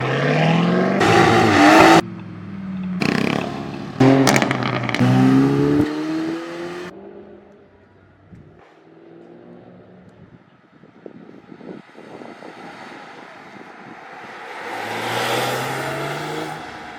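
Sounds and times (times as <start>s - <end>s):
sports car engines accelerating: 0.0s - 8.0s, 12.0s - 16.9s.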